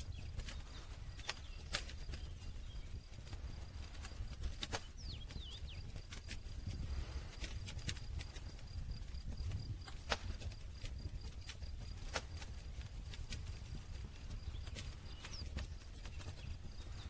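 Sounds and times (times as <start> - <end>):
low rumble of flames: 0.0 - 17.0
wood crackling and popping: 0.0 - 17.0.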